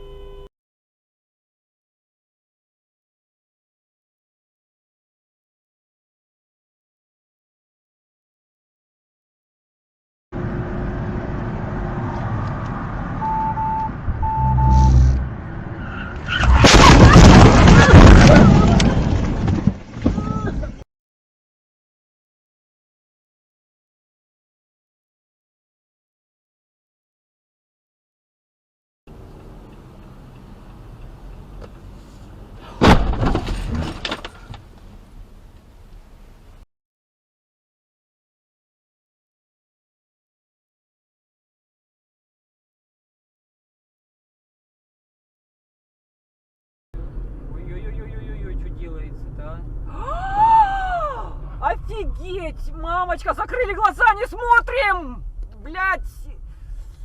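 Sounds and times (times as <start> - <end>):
road and engine noise: 10.4 - 20.8, 29.1 - 36.6, 47.0 - 57.0
short electronic beeps: 13.2 - 15.3
car collision crash: 16.3 - 20.6, 32.6 - 34.5
crunching and clattering debris: 16.5 - 20.6
low rumble: 47.0 - 53.1.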